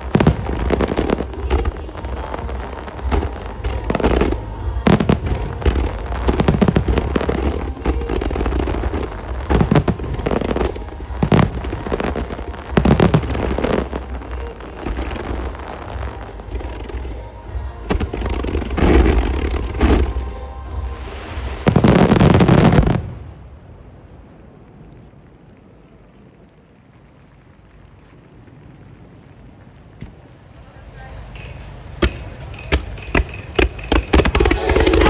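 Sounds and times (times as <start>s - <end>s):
pop music over loudspeakers: 0.0s - 22.9s
fireworks bangs: 0.0s - 23.6s, 28.0s - 35.0s
fireworks crackling: 0.0s - 35.0s
low rumble: 0.0s - 35.0s.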